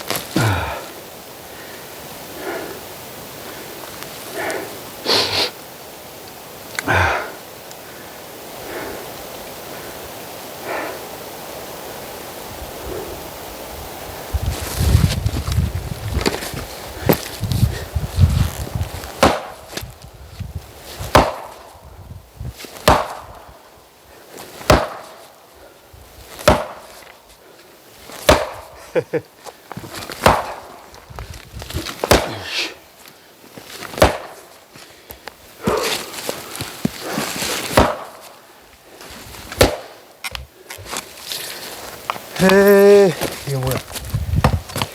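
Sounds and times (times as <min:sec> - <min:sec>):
firewood being chopped: 0:00.0 - 0:00.8, 0:19.1 - 0:19.9, 0:21.0 - 0:21.7, 0:22.6 - 0:23.5, 0:24.6 - 0:25.4, 0:26.3 - 0:27.2, 0:28.1 - 0:28.8, 0:29.7 - 0:32.5, 0:33.8 - 0:38.4, 0:39.4 - 0:44.9.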